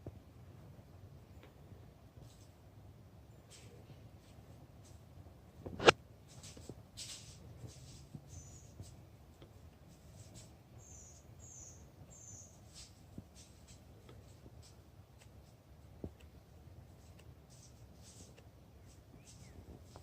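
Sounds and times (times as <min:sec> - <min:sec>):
high chirping bird calls: 0:08.3 - 0:08.8, 0:10.8 - 0:12.8.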